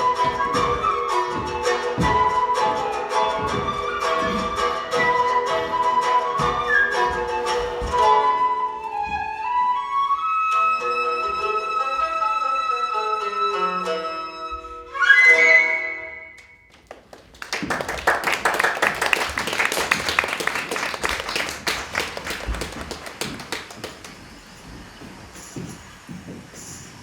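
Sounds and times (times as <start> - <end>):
wind instrument notes: 0.0 - 16.7.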